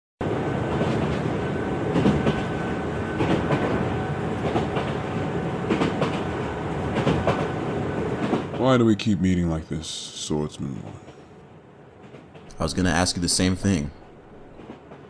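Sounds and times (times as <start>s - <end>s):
train rumbling along track: 0.2s - 15.0s
wheels clacking over rail joints: 0.6s - 8.7s.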